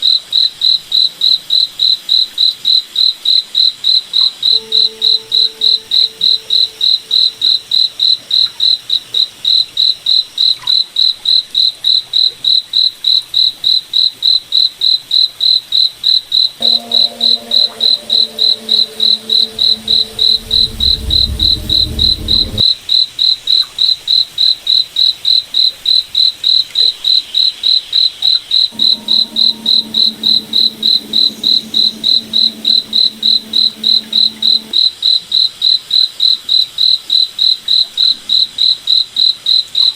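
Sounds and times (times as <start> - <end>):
low droning hum: 16.6 - 22.6, 28.7 - 34.8
cricket chirping: 28.7 - 34.8.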